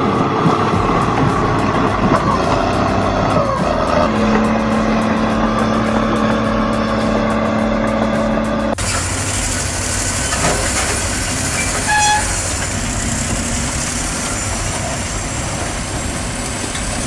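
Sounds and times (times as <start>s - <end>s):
background music: 0.0s - 10.1s
bulldozer engine running: 0.0s - 17.0s.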